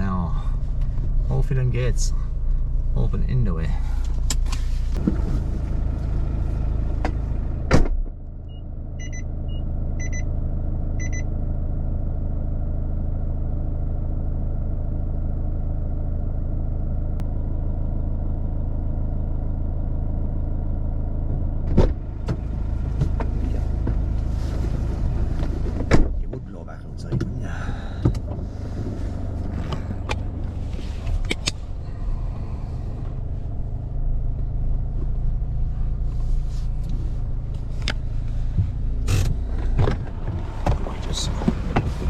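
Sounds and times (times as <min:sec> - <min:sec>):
vehicle engine idling: 0:00.0 - 0:42.0
car door shutting: 0:03.9 - 0:05.8, 0:07.0 - 0:08.1, 0:21.6 - 0:26.5, 0:27.1 - 0:31.8, 0:37.5 - 0:42.0
short electronic beeps: 0:08.5 - 0:10.3, 0:11.0 - 0:11.2.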